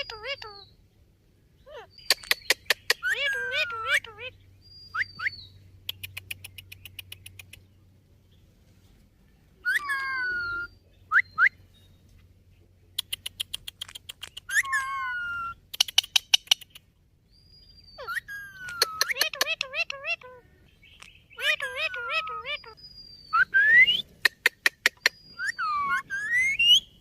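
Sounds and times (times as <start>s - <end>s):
parakeet whistles and calls: 1.6s - 5.6s, 9.6s - 11.6s, 14.3s - 16.5s, 17.4s - 24.2s, 24.8s - 27.0s
parakeet harsh squawks: 1.7s - 4.3s.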